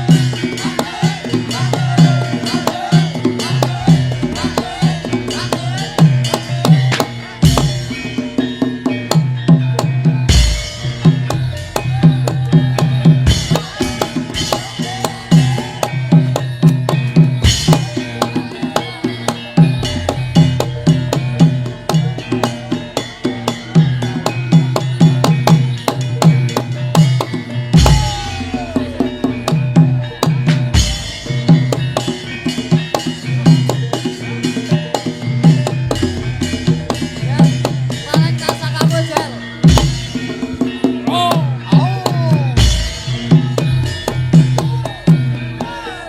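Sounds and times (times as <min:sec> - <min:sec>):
fast drum rhythm: 0:00.0 - 0:46.0
ringing pitched percussion: 0:00.0 - 0:46.0.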